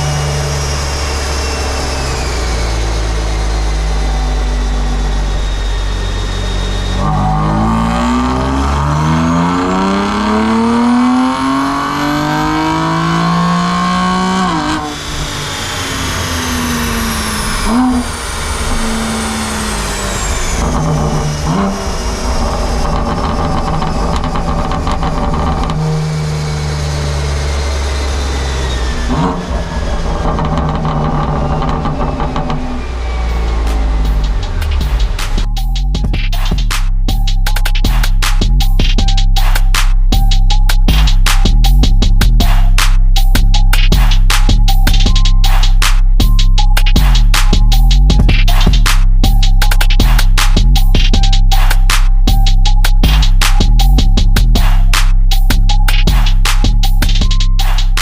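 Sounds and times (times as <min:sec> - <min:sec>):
car engine revving at full throttle: 0:00.0 - 0:35.6.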